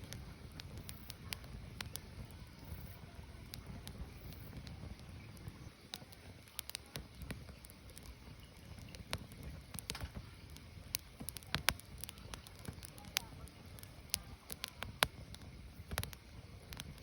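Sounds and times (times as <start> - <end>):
firewood crackling and popping: 0.0 - 17.0
low rumble of flames: 0.0 - 17.0.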